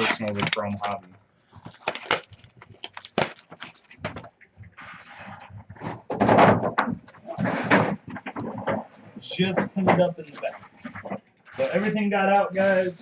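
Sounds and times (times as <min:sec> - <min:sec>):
card packs tearing: 0:00.0 - 0:01.0, 0:01.6 - 0:04.2.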